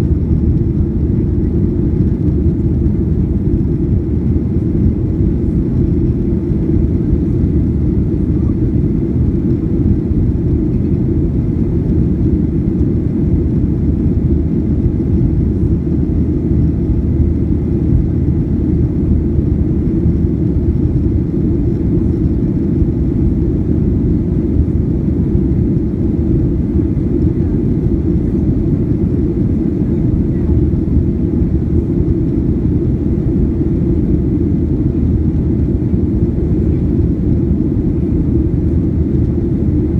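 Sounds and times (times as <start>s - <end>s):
jet airliner engine rumble: 0.0s - 39.9s.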